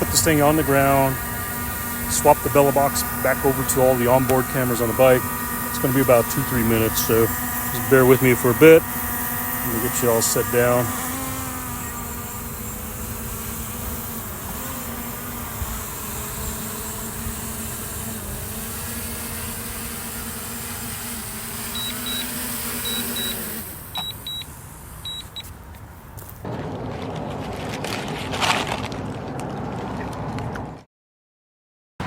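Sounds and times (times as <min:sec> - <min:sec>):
drone propellers buzzing: 0:00.0 - 0:26.3
short high beeps: 0:21.8 - 0:23.4, 0:24.0 - 0:25.5.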